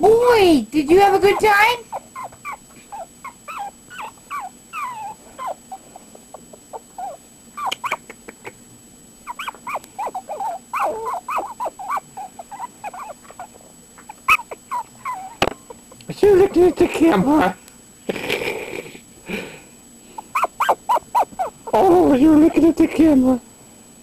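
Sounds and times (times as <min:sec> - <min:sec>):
puppies whining: 0:00.9 - 0:08.5, 0:09.2 - 0:17.0, 0:20.2 - 0:22.6.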